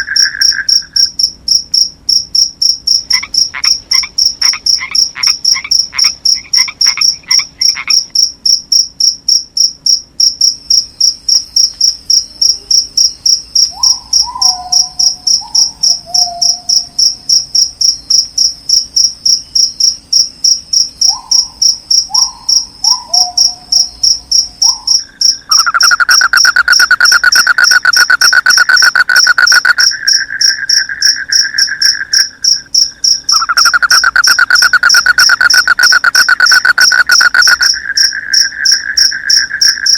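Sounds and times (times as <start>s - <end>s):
crickets chirping: 0.0s - 39.9s
loud fast insect trill: 0.0s - 39.9s
short falling frog calls: 3.1s - 8.1s, 22.1s - 39.9s.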